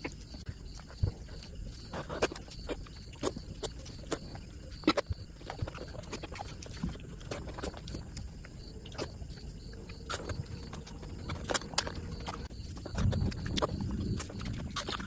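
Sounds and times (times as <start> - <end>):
wet chewing and lip-smacking: 0.0 - 15.0.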